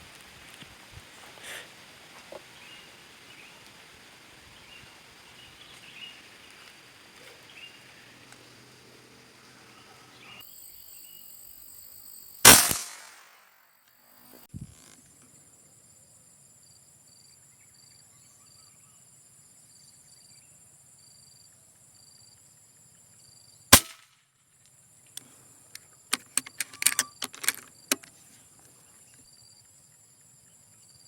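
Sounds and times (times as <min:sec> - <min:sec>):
insects chirring: 0:00.0 - 0:23.6, 0:24.6 - 0:31.0
loud gunshot: 0:12.4 - 0:13.4, 0:23.8 - 0:24.0
sharp clicks and rattles: 0:25.7 - 0:28.1.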